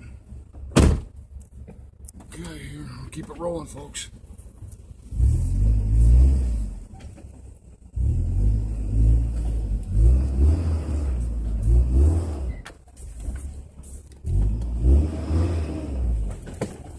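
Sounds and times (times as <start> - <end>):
off-road vehicle engine revving: 4.9 - 16.9.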